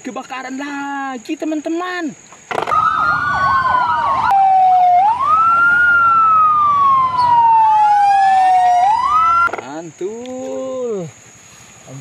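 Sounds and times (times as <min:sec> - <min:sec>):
fire engine sirens wailing: 0:02.6 - 0:09.5.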